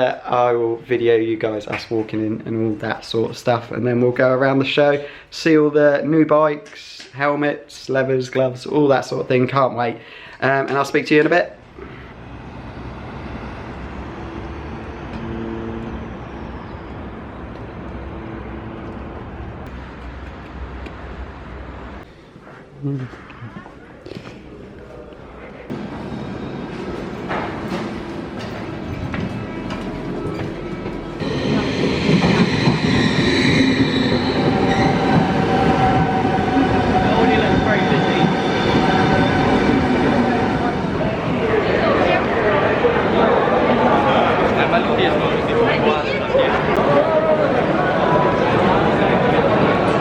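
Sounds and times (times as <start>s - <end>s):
train rumbling on rails: 11.6s - 22.1s, 25.6s - 50.0s.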